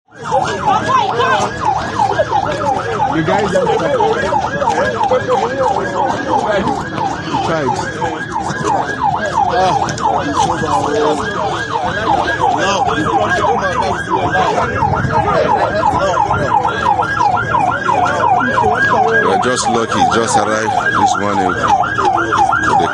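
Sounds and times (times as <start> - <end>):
fast yelping siren: 0.1 - 22.9
voices: 0.1 - 22.9.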